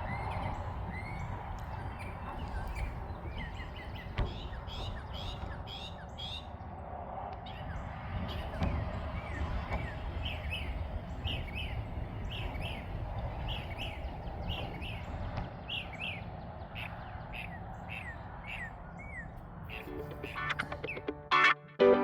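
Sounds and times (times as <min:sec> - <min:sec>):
bird chirping: 0:00.0 - 0:06.6, 0:07.5 - 0:21.2
low background rumble: 0:00.0 - 0:19.8
music: 0:19.8 - 0:22.0.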